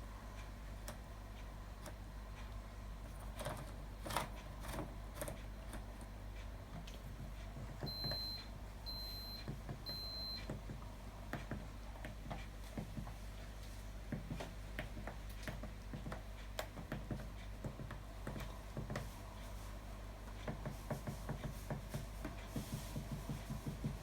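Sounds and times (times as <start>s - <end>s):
washing machine beeping: 7.5s - 10.8s.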